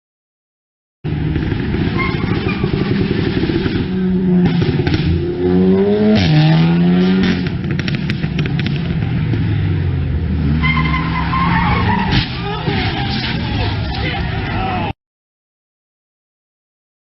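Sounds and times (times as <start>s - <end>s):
vehicle engine accelerating: 1.1s - 14.6s.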